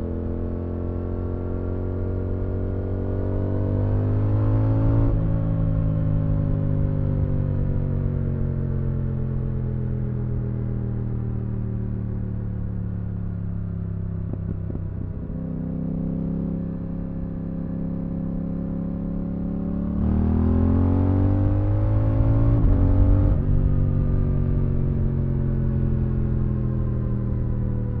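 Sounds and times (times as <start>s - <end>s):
motorcycle engine revving: 14.2s - 27.5s.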